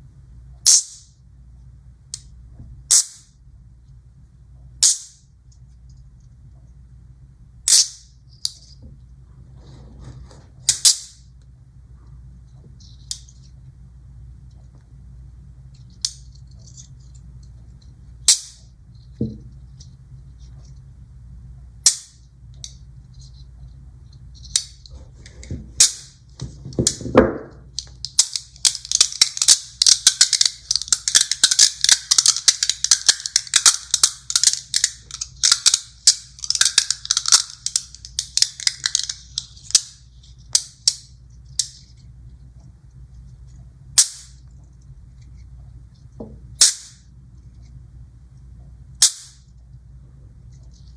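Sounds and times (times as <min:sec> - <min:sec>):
magnet balls clicking together: 0:00.7 - 0:01.1, 0:07.7 - 0:08.7, 0:15.8 - 0:17.6, 0:18.3 - 0:19.3, 0:24.4 - 0:27.1, 0:27.7 - 0:42.0, 0:44.0 - 0:44.4, 0:46.6 - 0:47.1, 0:49.0 - 0:49.6.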